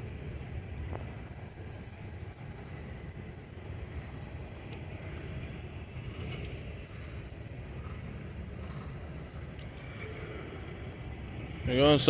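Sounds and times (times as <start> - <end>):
freight train rumbling on rails: 0.0 - 12.0
faint squeaks: 9.6 - 12.0.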